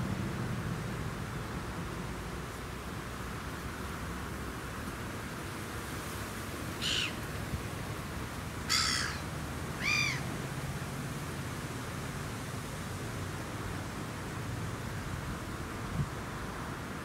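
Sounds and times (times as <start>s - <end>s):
bird calling: 6.8s - 7.2s, 8.7s - 10.3s.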